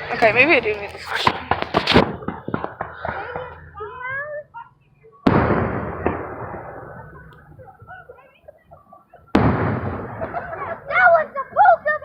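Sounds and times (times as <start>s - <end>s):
firework sharp crack: 0.0s - 3.6s, 5.3s - 7.2s, 9.3s - 10.9s
fireworks booming: 0.0s - 3.7s, 5.2s - 8.1s, 9.3s - 12.0s.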